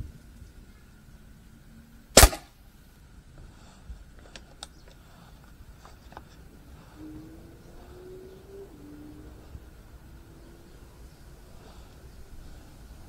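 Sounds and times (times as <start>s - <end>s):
air rifle shot: 2.2s - 2.5s.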